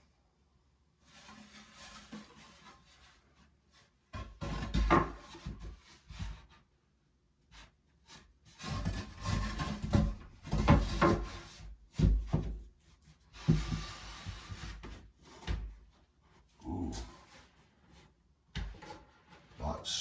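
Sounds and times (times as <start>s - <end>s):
wood knocking and clattering: 4.1s - 6.4s, 8.6s - 12.6s, 18.5s - 19.5s.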